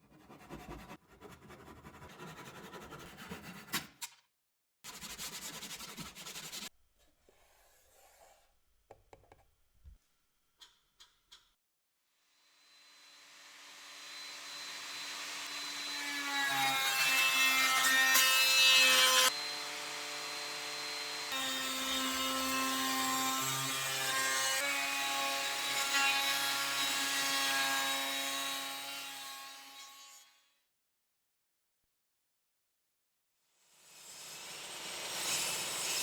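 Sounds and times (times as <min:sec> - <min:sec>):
power tool working wood: 0:12.6 - 0:26.0.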